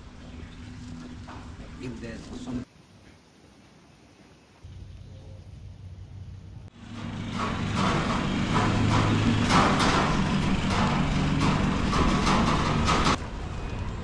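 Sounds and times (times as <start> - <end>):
vehicle engine running: 5.6 - 14.0
clattering and knocking: 6.9 - 13.2.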